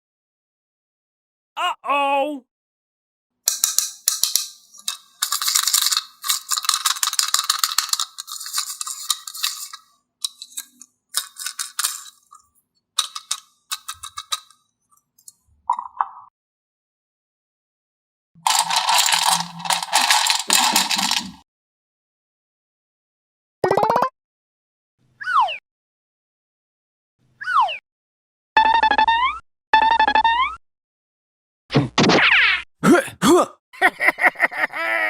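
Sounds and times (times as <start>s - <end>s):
small hard objects rattling: 3.5s - 12.4s, 13.0s - 14.5s, 18.4s - 21.4s.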